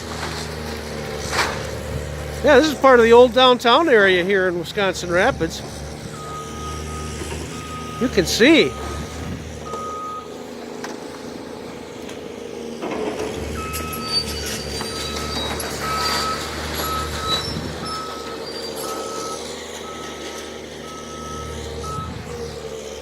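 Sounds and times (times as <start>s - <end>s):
diesel engine hum: 0.0s - 23.0s
reversing alarm beeping: 6.1s - 10.3s, 13.6s - 22.2s.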